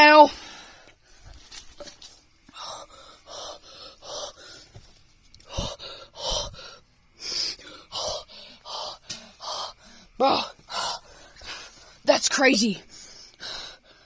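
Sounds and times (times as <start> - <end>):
man breathing hard: 2.5 - 12.0, 12.8 - 14.0.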